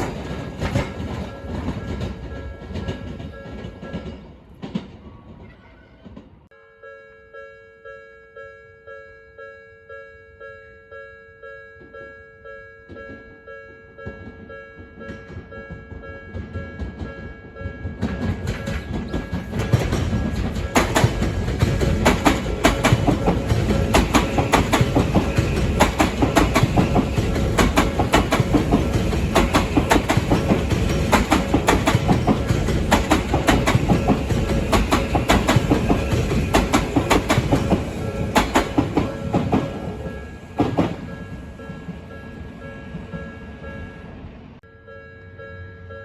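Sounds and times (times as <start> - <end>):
wheels clattering over rail joints: 0.0 - 6.4, 14.0 - 43.7.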